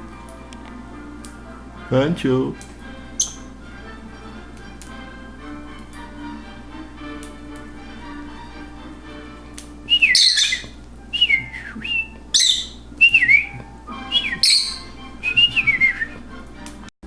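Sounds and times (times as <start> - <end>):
lovebird chirping: 3.1 - 3.6, 9.8 - 16.2.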